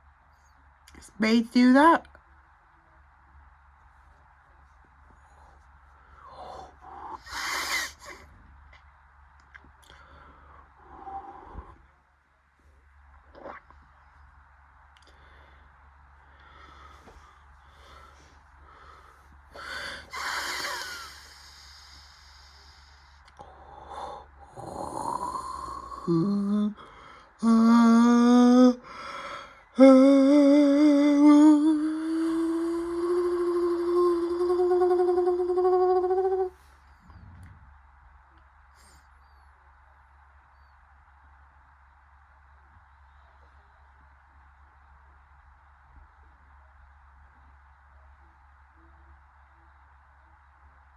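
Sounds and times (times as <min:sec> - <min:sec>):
person humming notes: 0:24.6 - 0:26.8, 0:27.4 - 0:28.8, 0:29.8 - 0:36.6.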